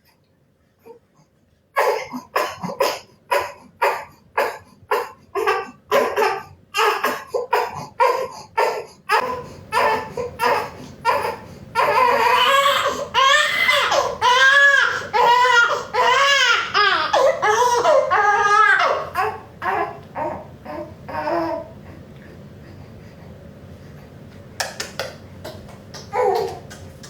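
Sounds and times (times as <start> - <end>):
baby crying: 1.8 - 21.7, 26.1 - 26.7.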